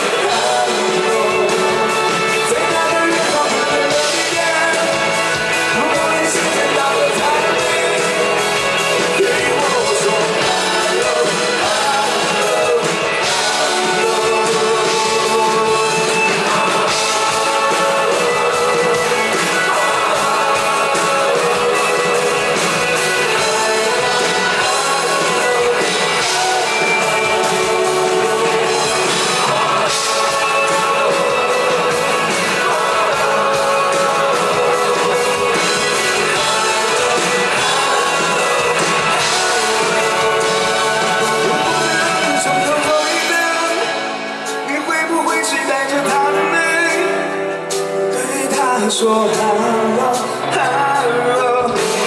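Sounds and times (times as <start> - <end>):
rock band playing live: 0.0 - 52.0.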